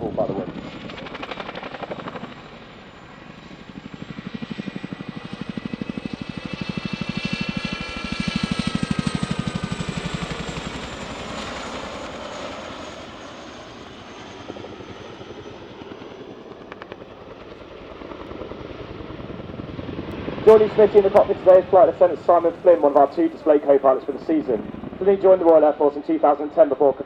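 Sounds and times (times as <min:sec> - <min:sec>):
turbine whine: 0:18.2 - 0:27.0.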